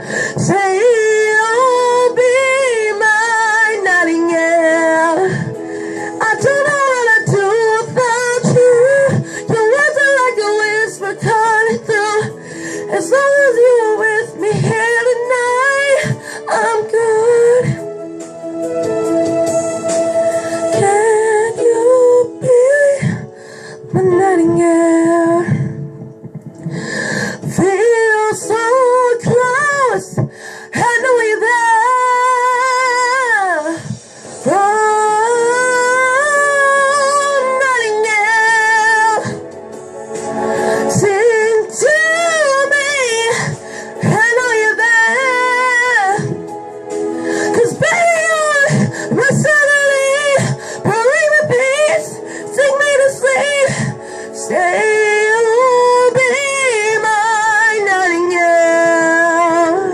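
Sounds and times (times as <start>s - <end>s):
woman singing pop ballad: 0.0s - 59.9s
sustained backing chords: 10.6s - 57.2s.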